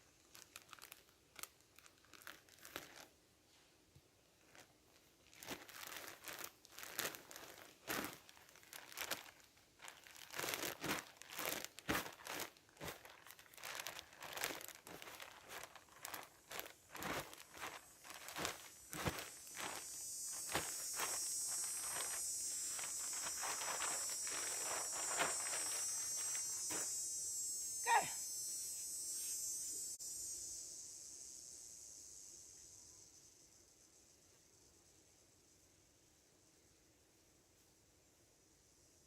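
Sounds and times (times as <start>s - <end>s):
material crinkling and rustling: 0.0s - 3.7s, 4.3s - 26.9s
steady high hiss: 0.0s - 39.0s.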